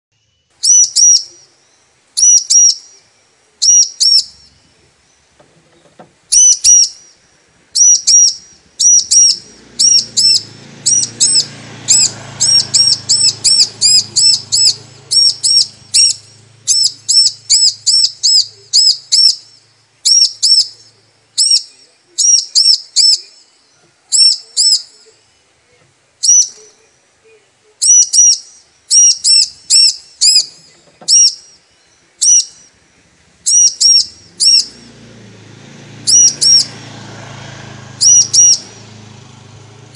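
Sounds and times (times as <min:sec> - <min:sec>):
bird high chirps: 0:00.2 - 0:34.9, 0:36.1 - 0:36.8, 0:38.0 - 0:39.2.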